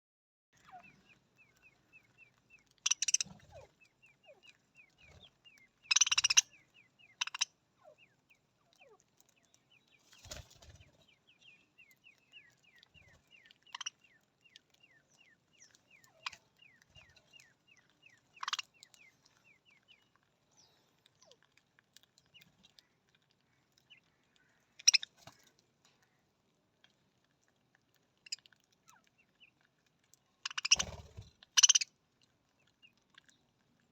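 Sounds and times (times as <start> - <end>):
budgerigars chirping: 0.6 - 8.0, 12.3 - 14.1, 15.9 - 19.0, 24.8 - 25.2, 30.4 - 31.9.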